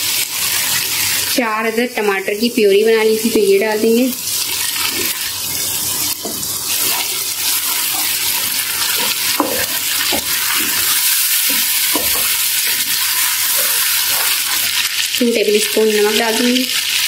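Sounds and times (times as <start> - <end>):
tomato puree sizzling in hot oil: 0.0 - 17.0
wooden spatula stirring: 4.6 - 14.8.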